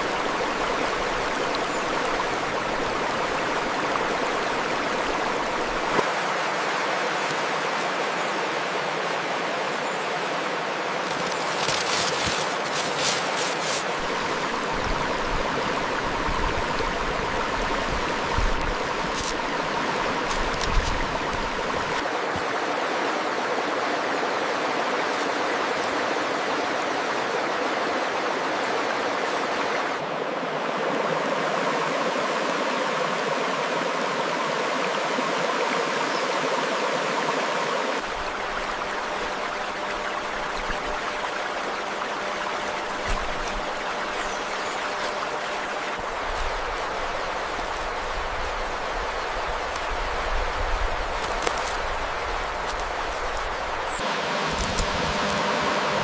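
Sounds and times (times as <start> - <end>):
stream water running: 0.0 - 56.0.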